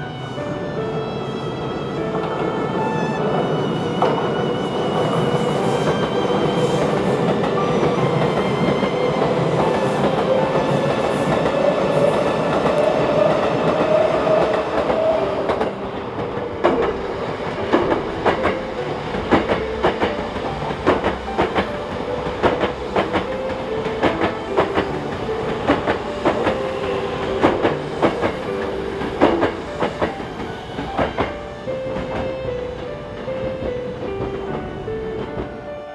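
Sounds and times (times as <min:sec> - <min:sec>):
electric train running: 0:00.0 - 0:35.7.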